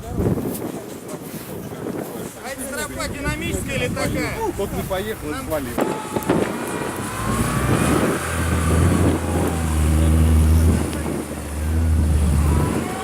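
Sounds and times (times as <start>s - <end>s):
off-road vehicle engine under load: 2.6s - 13.0s.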